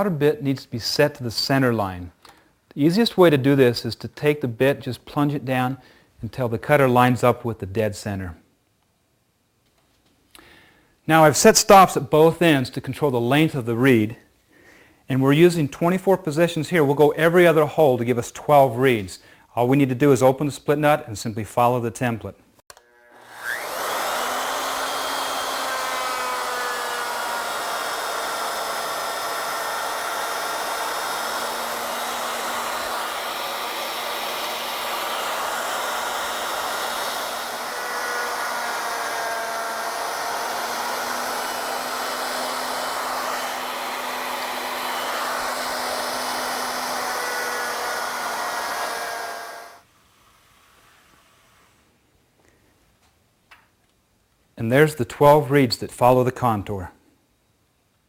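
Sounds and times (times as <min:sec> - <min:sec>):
electric router cutting wood: 0:22.7 - 0:51.2.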